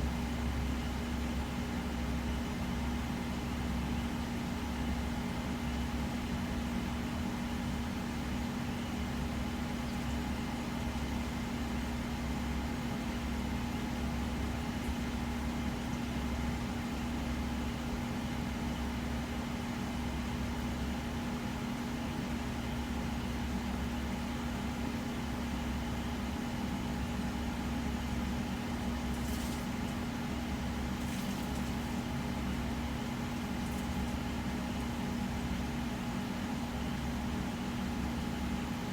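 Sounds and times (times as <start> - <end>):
electric fans humming: 27.8 - 36.9.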